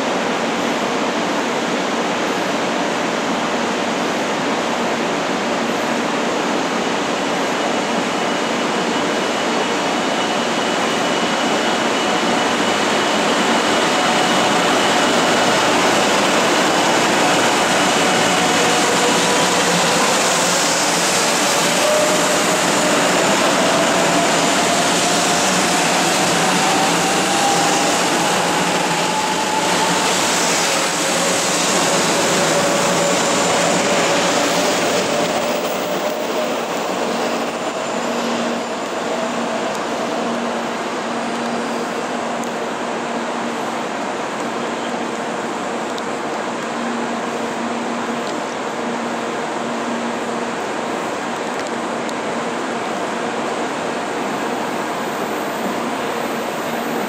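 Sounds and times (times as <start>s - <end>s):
train rushing noise: 0.0s - 57.0s
train whine rising in pitch: 6.7s - 42.5s, 53.0s - 57.0s.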